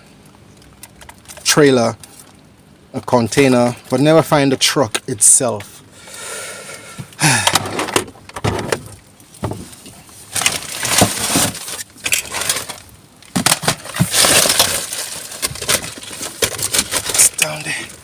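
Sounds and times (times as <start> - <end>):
rubbish clattering and knocking: 7.3 - 18.0
rustling: 8.8 - 18.0.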